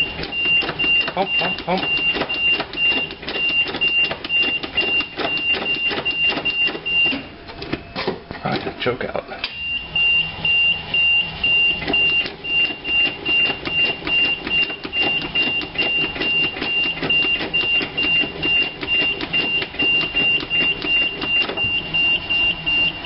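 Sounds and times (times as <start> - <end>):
warning buzzer beeping: 0.0 - 7.4, 9.6 - 23.0.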